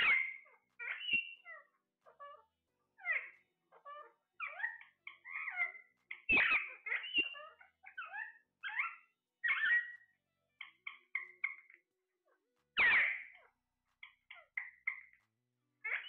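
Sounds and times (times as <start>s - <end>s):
parrot chattering: 0.0s - 10.0s.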